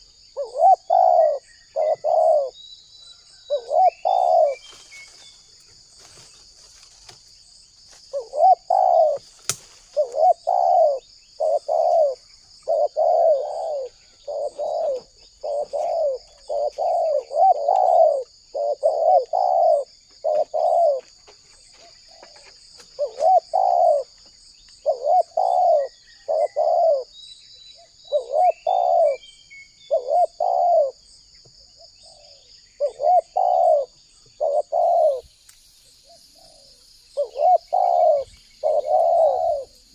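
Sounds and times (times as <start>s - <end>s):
dove cooing: 0.0s - 2.6s, 3.3s - 4.7s, 8.1s - 9.3s, 9.9s - 21.2s, 21.8s - 24.2s, 24.8s - 27.2s, 27.8s - 31.1s, 31.8s - 35.3s, 36.0s - 39.9s.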